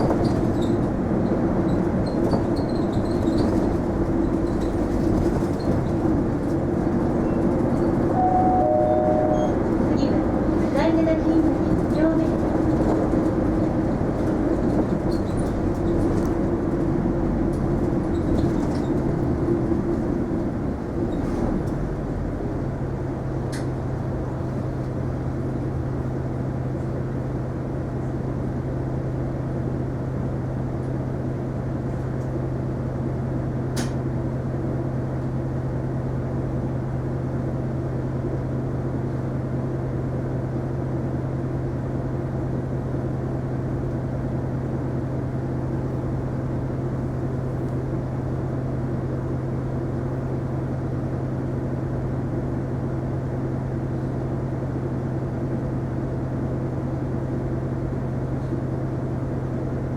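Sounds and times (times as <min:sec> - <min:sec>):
bus diesel engine idling: 0:00.0 - 0:59.9.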